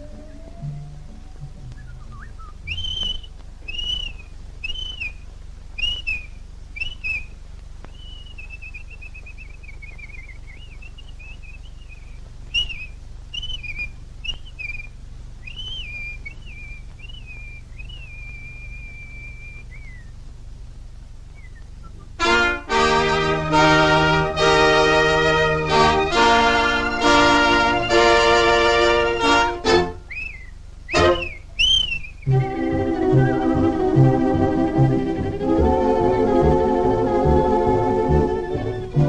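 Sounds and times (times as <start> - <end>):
bird-like whistling: 0.0 - 5.2, 5.8 - 20.2, 21.3 - 22.2, 30.0 - 34.9
low soundtrack hum: 0.0 - 39.0.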